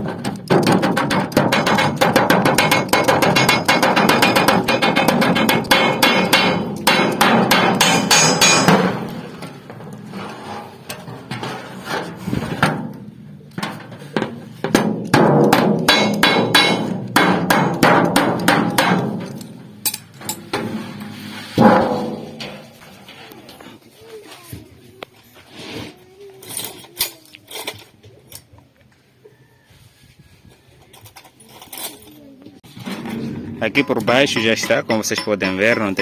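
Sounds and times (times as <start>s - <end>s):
hammer striking sheet metal: 0.0s - 9.5s, 13.6s - 22.8s, 32.8s - 36.0s.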